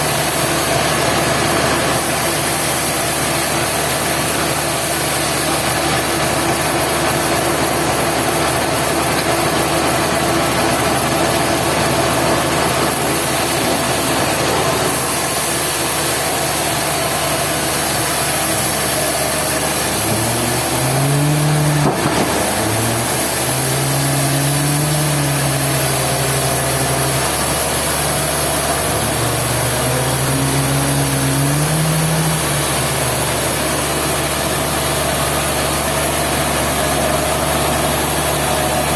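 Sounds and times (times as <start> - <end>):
sawmill machinery running: 0.0 - 38.9
low humming tone: 12.5 - 34.4.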